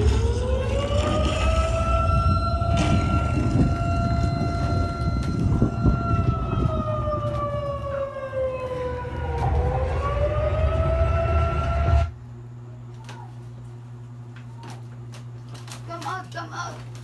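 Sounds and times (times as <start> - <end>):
alarm siren wailing: 0.0 - 12.2.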